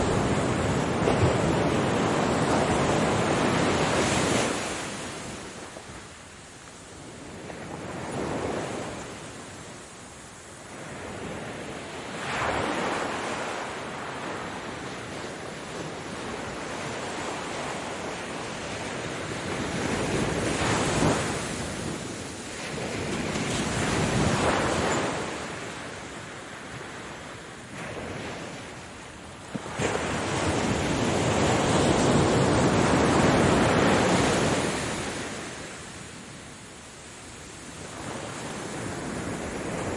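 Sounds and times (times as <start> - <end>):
ocean waves breaking on shore: 0.0 - 39.9
wind noise on microphone: 0.0 - 39.9.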